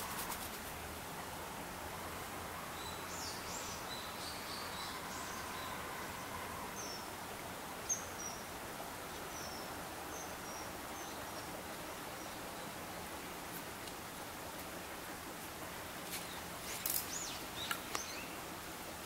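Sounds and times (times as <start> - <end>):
outdoor background hiss: 0.0 - 19.0
small birds chirping: 16.1 - 18.5.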